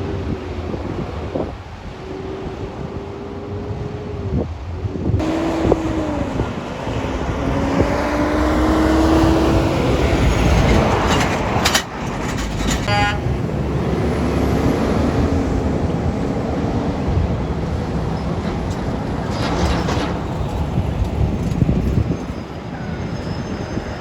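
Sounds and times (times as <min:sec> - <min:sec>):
road traffic passing: 0:00.0 - 0:24.0
truck engine: 0:00.0 - 0:24.0
short high horn toot: 0:12.9 - 0:13.3.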